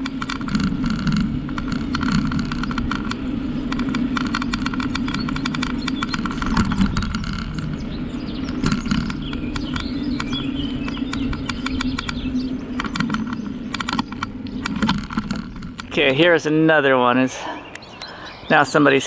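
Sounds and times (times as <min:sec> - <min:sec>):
bicycle clicks and rattles: 0:00.0 - 0:15.9
bicycle rolling on trail: 0:00.0 - 0:19.0
wind noise: 0:00.0 - 0:19.0
bird chirping: 0:05.1 - 0:14.0, 0:15.9 - 0:19.0.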